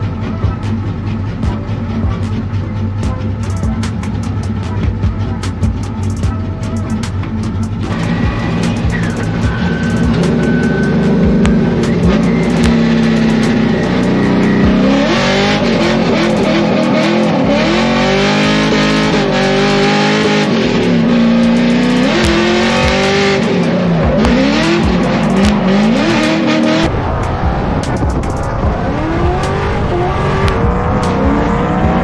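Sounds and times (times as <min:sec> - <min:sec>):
car engine revving hard: 0:00.0 - 0:32.0
tyre squeal: 0:03.4 - 0:26.9.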